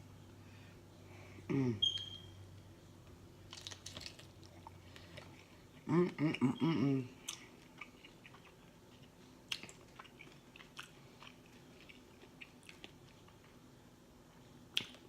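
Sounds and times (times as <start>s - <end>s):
person chewing: 7.1s - 13.6s, 14.7s - 15.0s
mouth clicks and smacks: 14.7s - 15.0s.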